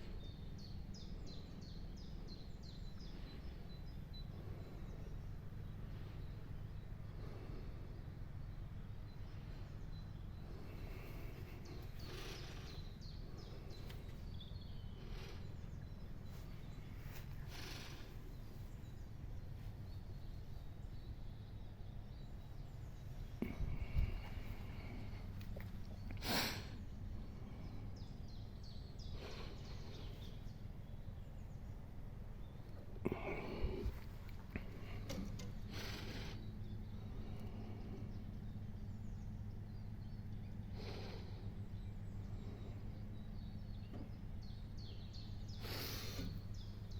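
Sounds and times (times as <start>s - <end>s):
short falling bird calls: 0.0s - 19.0s, 32.6s - 46.9s
birds chirping: 0.0s - 46.9s
steady low hum: 0.0s - 46.9s
steady low rumble: 0.0s - 46.9s.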